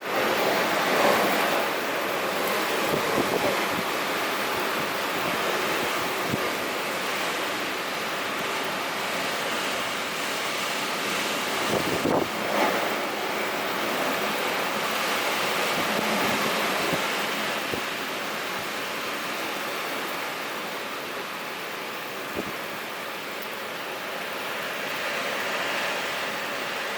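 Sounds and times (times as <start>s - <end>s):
strong wind rushing: 0.2s - 7.3s, 10.5s - 17.9s.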